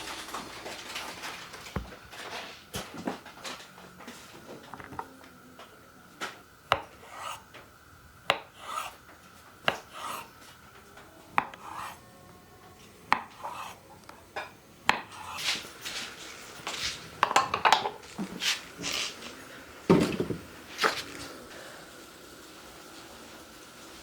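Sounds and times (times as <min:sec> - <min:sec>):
knife scraping cutting board: 0:06.8 - 0:07.4, 0:08.3 - 0:09.0, 0:09.7 - 0:10.3, 0:11.4 - 0:12.0, 0:13.2 - 0:13.8, 0:15.1 - 0:21.3
knife knocking on cutting board: 0:19.9 - 0:20.5.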